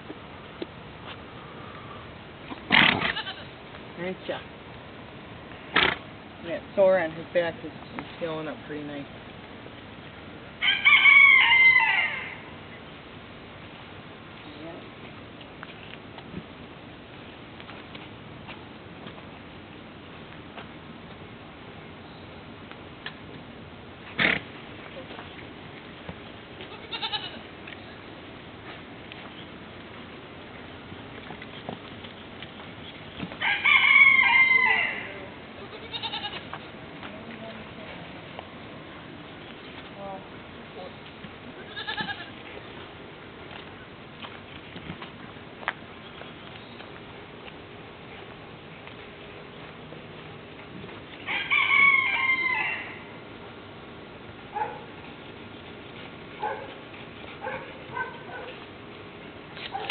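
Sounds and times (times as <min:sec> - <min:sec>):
rooster crowing: 0:10.6 - 0:12.5, 0:33.4 - 0:35.3, 0:51.2 - 0:53.2.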